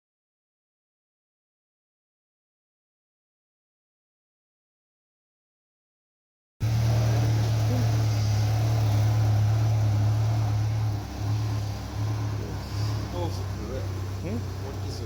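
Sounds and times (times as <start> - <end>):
pickup engine idling: 6.6 - 15.0.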